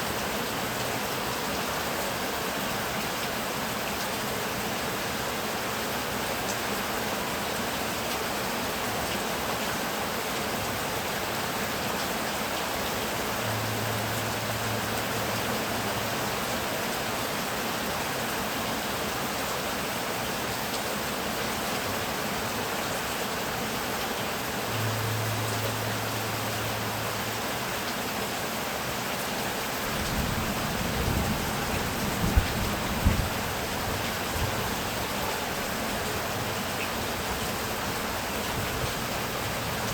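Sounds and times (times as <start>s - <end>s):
heavy rain: 0.0s - 39.9s
thunder rumbling and cracking: 30.0s - 34.8s.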